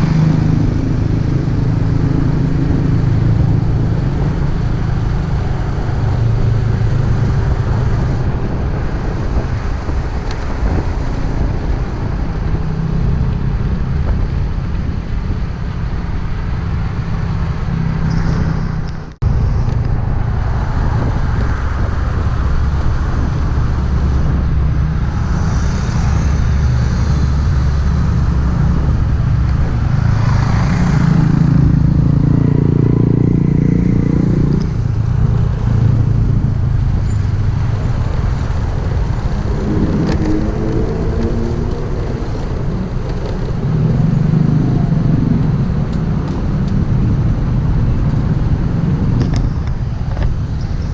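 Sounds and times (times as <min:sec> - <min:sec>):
road rumble: 0:00.0 - 0:50.9
motorcycle engine: 0:16.5 - 0:50.0.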